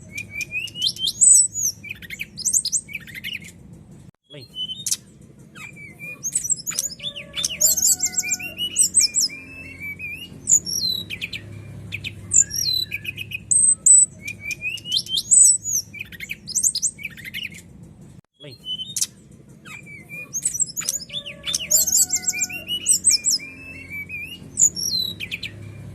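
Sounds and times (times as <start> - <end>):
bird singing varied song: 0.0 - 3.6, 4.2 - 17.8, 18.4 - 25.9.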